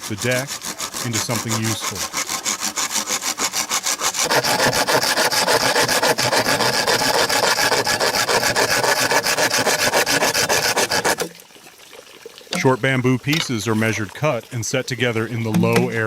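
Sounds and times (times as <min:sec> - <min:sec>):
hand saw cutting bamboo: 0:00.0 - 0:11.3.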